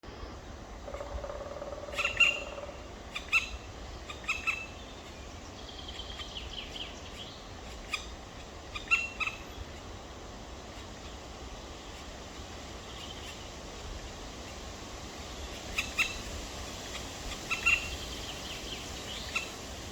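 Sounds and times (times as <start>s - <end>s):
woodpecker chicks calling: 0.8s - 9.9s, 12.8s - 13.5s, 15.5s - 19.6s.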